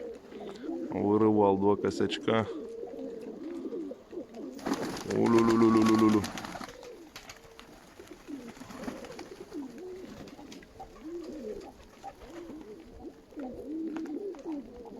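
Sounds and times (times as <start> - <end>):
pigeons cooing: 0.0 - 14.9.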